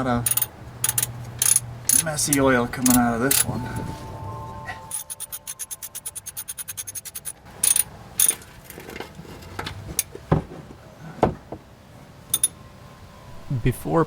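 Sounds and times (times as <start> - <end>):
ratchet clicking rapidly: 0.2 - 2.5, 5.0 - 8.4
sharp metallic clanks and knocks: 0.2 - 3.6, 4.9 - 9.1, 12.3 - 12.6.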